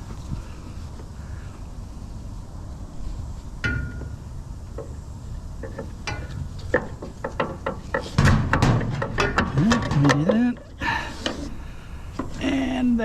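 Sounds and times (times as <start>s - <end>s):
metal clank with ring: 3.6s - 4.2s
scrap knocking and rattling: 5.6s - 11.5s.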